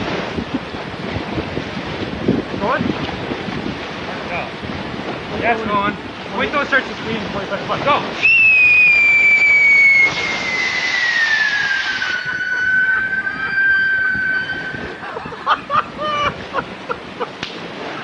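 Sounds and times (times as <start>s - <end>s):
rocket motor rushing: 8.1s - 15.1s
high whistling scream: 8.2s - 15.1s.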